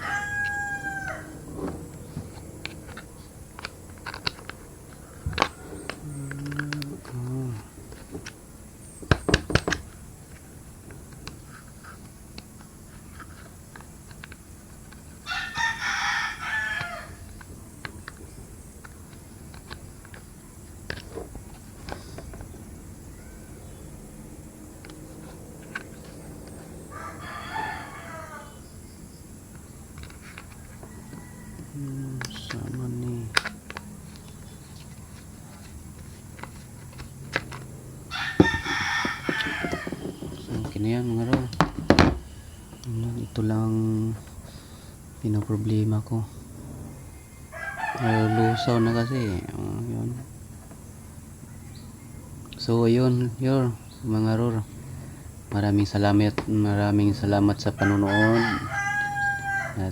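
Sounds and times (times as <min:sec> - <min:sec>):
rooster crowing: 0:00.0 - 0:07.8, 0:14.9 - 0:17.5, 0:23.0 - 0:29.0, 0:30.0 - 0:35.6, 0:36.4 - 0:42.8, 0:47.4 - 0:49.8, 0:57.6 - 0:59.9
loud sharp knocks: 0:38.3 - 0:42.4
clicks and taps: 0:38.4 - 0:42.9.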